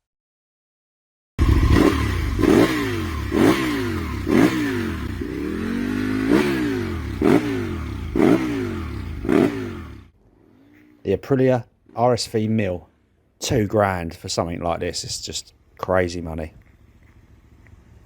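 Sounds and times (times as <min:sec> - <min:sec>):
motorcycle engine revving: 0:01.4 - 0:11.0.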